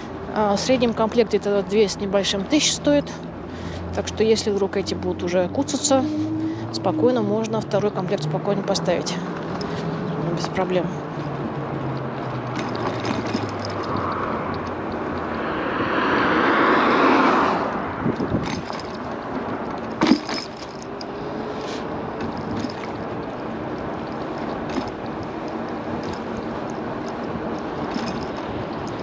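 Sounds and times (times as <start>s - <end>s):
road traffic noise: 0.0s - 29.0s
vehicle passing: 2.7s - 19.9s.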